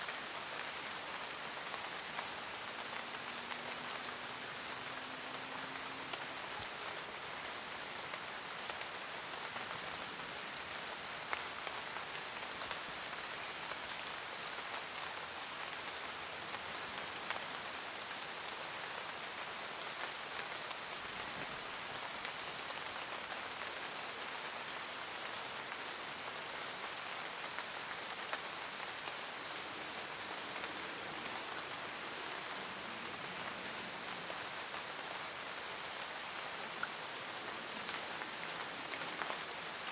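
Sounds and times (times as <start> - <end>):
raindrops pattering on leaves: 0.0 - 39.9
steady rain hiss: 0.0 - 39.9.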